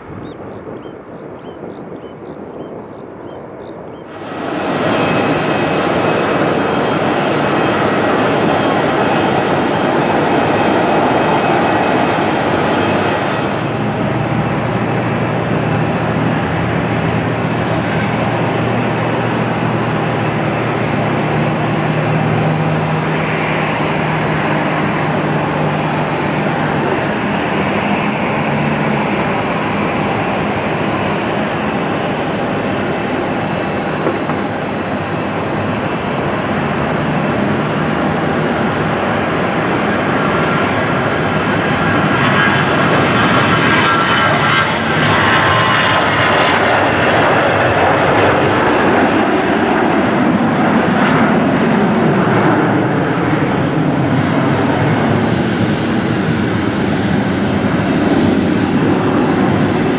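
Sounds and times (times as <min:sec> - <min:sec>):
jet engines roaring: 0:00.0 - 0:59.9
low hum: 0:04.4 - 0:33.4.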